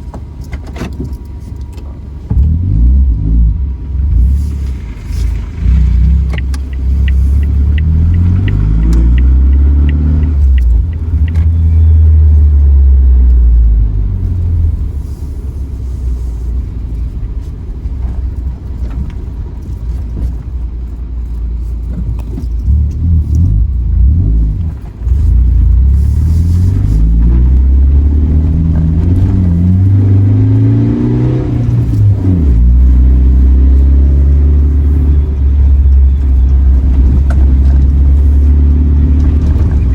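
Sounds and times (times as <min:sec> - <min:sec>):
tyres rumbling on gravel: 0:00.0 - 0:12.8, 0:13.7 - 0:39.9
car engine accelerating: 0:01.9 - 0:39.9
light ticks: 0:06.0 - 0:11.6.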